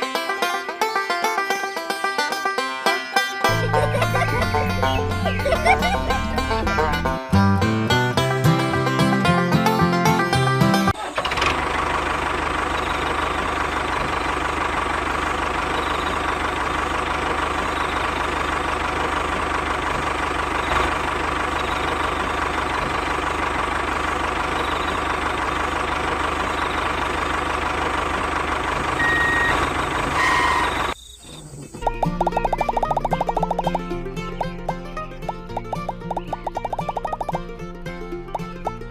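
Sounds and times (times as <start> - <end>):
high beeps: 29.0 - 31.2.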